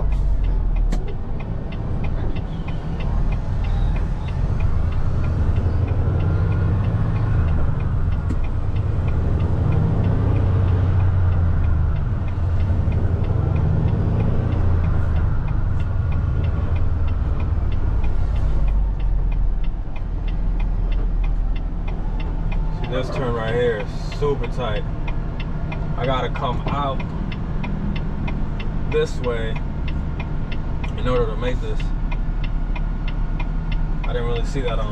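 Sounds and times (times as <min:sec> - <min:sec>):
truck diesel engine running: 0:00.0 - 0:34.9
turn signal ticking: 0:00.0 - 0:34.9.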